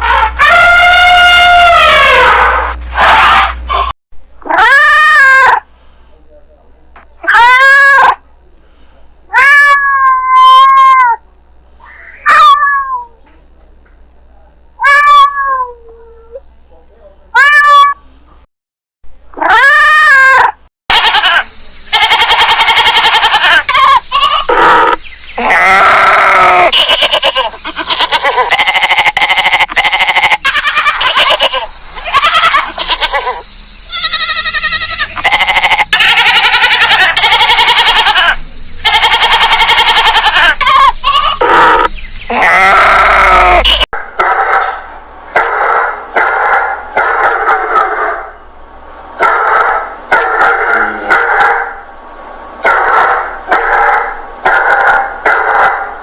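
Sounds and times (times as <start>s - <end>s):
livestock bleating: 20.9s - 43.8s.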